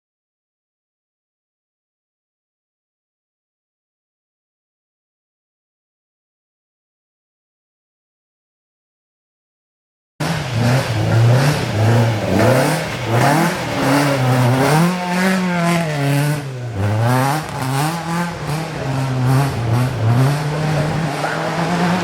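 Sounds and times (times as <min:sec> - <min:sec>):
rally car engine revving: 0:10.2 - 0:22.0.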